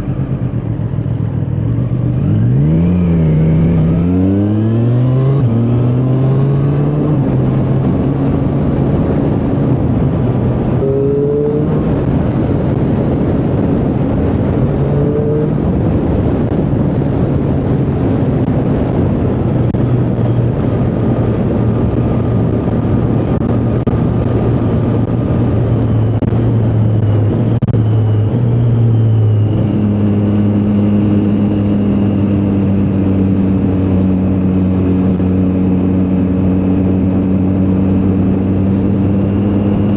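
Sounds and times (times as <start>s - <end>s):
motorcycle engine running: 0.0s - 39.9s
steady rushing noise: 0.0s - 39.9s.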